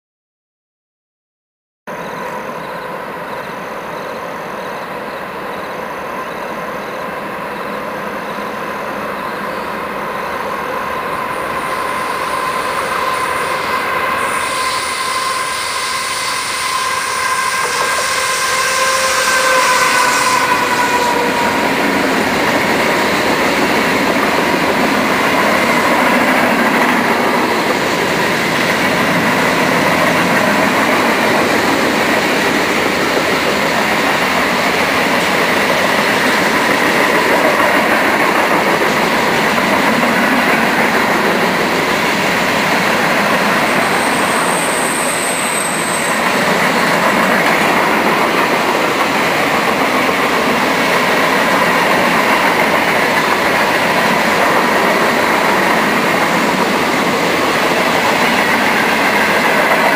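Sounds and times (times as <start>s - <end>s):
freight train rumbling past: 1.9s - 59.9s.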